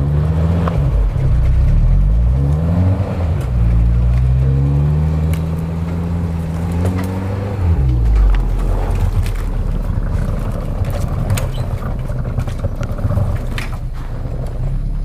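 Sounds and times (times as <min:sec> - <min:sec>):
suv engine revving hard: 0:02.0 - 0:09.4.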